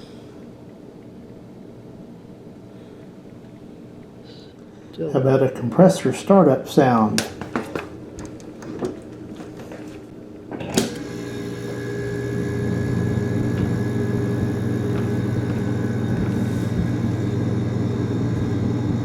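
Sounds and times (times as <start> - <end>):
refrigerator compressor hum: 0.0 - 19.0
refrigerator compressor click: 10.5 - 19.0.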